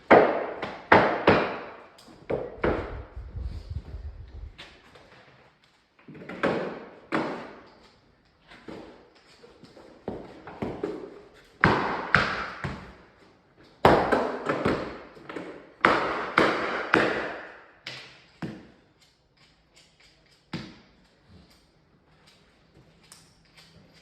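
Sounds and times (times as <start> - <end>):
knocks on timber floorboards: 0.0 - 3.1.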